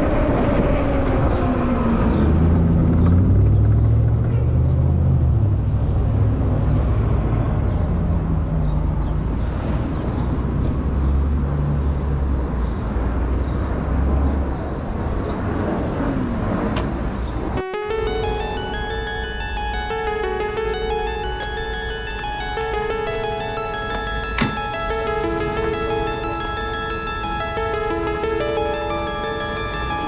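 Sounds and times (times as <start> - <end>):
road traffic rumble: 1.8 - 17.6.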